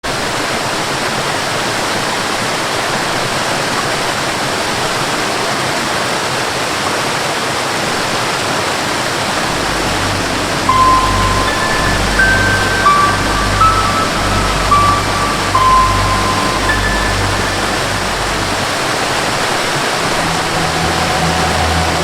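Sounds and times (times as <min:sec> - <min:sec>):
waterfall rushing: 0:08.8 - 0:22.0
low bass drone: 0:09.4 - 0:22.0
melody note: 0:09.4 - 0:22.0.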